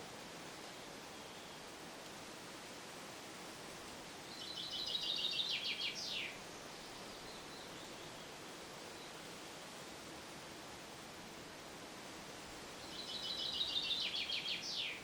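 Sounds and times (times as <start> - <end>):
steady hiss: 0.0 - 15.0
songbird trill: 1.1 - 1.7, 4.2 - 9.4, 12.8 - 15.0.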